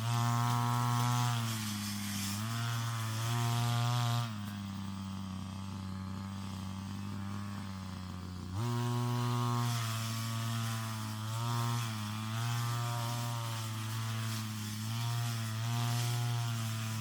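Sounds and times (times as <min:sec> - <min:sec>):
brush cutter engine: 0:00.0 - 0:17.0.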